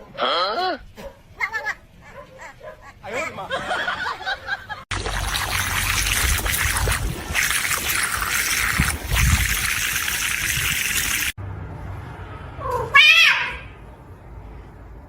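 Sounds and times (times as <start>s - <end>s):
running water: 4.9s - 11.4s
cat meowing: 12.7s - 13.7s.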